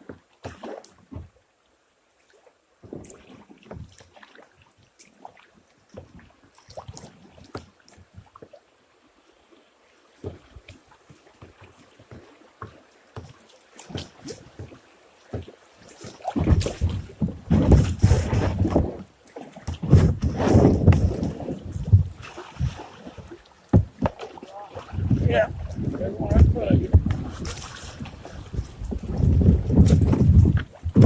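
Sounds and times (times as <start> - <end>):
paddle knocking against hull: 0.0 - 1.4, 10.2 - 31.0
paddle splashes: 0.0 - 31.0
rushing water: 0.0 - 31.0
wind on microphone: 16.4 - 19.1, 19.7 - 22.9, 24.7 - 31.0.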